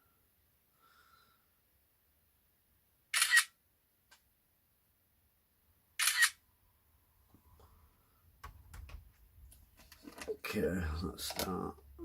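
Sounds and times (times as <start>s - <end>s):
camera shutter: 3.1s - 3.6s, 6.0s - 6.4s.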